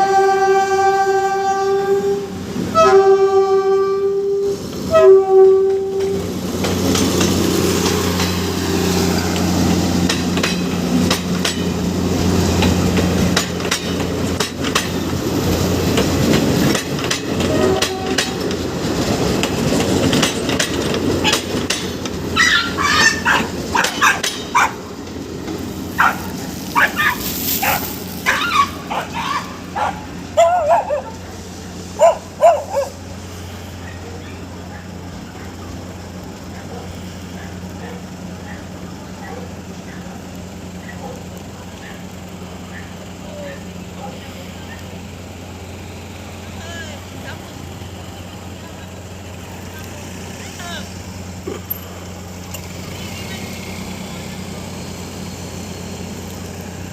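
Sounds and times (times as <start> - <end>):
train horn blasts: 0.0 - 6.4, 17.4 - 18.5
train engine drone: 0.0 - 56.9
wheels clicking over rail joints: 0.0 - 56.9
dogs barking: 22.3 - 24.9, 26.0 - 33.0, 36.5 - 40.2, 40.8 - 42.1, 42.7 - 43.0, 43.9 - 44.8.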